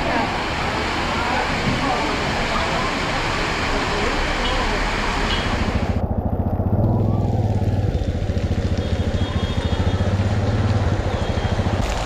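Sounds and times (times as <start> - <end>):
muffled engine running: 5.0 - 11.9.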